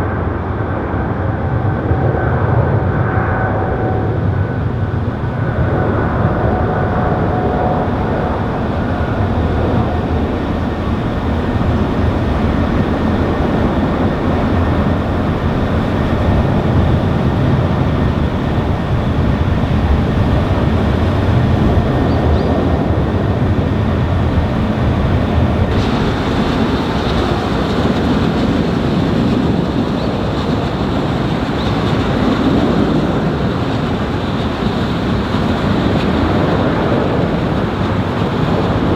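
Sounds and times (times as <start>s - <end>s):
jet engines roaring: 0.0s - 38.9s.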